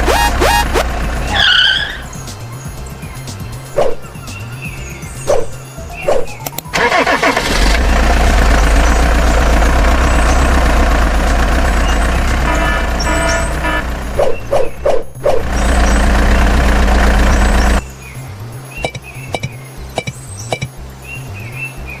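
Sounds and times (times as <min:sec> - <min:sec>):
truck engine running: 0:00.0 - 0:04.5, 0:06.6 - 0:17.9, 0:18.8 - 0:20.7
beeps: 0:18.8 - 0:20.7.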